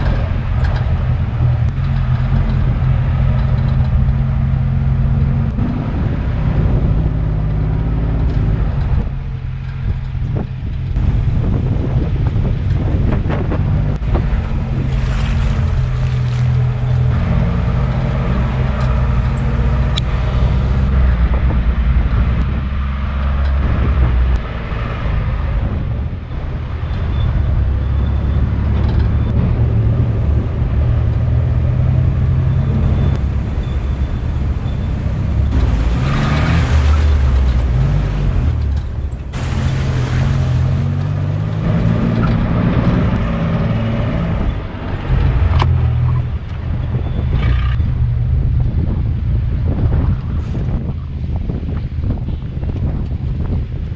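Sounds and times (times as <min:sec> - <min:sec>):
vehicle engine revving: 0:00.0 - 0:50.9.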